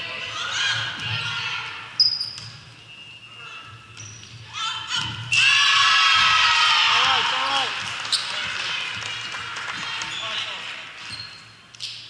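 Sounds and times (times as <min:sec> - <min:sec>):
sneakers squeaking on floor: 0:02.0 - 0:05.4, 0:08.1 - 0:08.5, 0:09.7 - 0:12.0.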